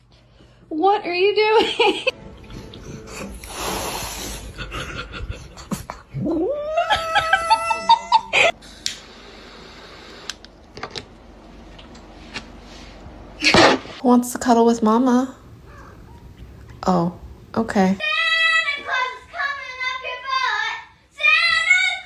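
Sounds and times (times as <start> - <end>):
cat yowling: 6.2 - 8.5, 15.4 - 16.8.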